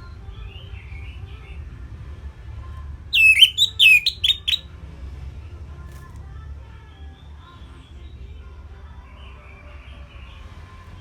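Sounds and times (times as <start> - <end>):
faint bird chirps: 3.2 - 4.6
thrush singing whistled notes: 3.2 - 4.6.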